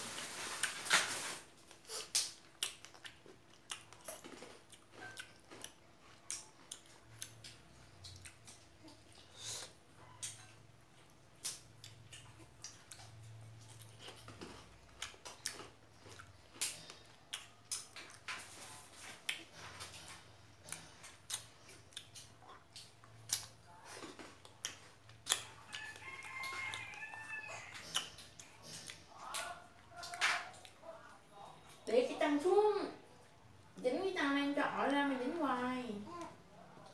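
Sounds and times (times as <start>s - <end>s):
wet chewing and mouth smacking: 1.6s - 31.9s
rooster crowing: 25.4s - 28.1s.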